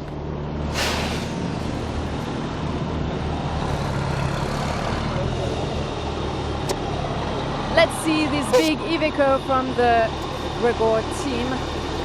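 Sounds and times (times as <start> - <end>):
diesel truck engines running: 0.0 - 12.0
loud hiss: 0.7 - 1.6.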